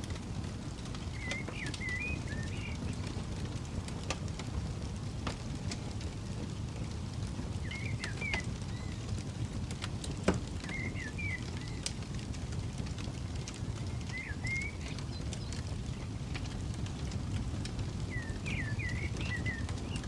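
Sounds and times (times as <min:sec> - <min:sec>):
campfire crackling and popping: 0:00.0 - 0:20.0
low steady rumble: 0:00.0 - 0:20.0
bird chirping: 0:01.1 - 0:02.9, 0:07.6 - 0:09.0, 0:10.7 - 0:11.8, 0:14.0 - 0:15.6, 0:18.1 - 0:20.0.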